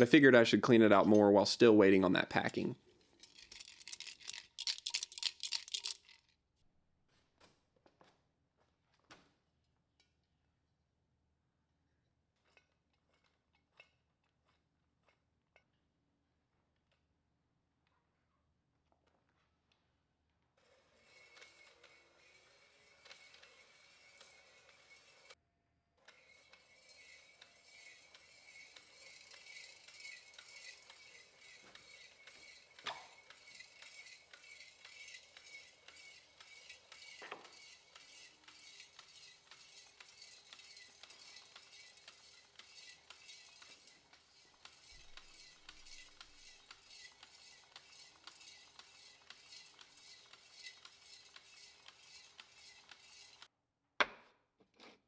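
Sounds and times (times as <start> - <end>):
metal lantern tank clinking: 2.4 - 6.2.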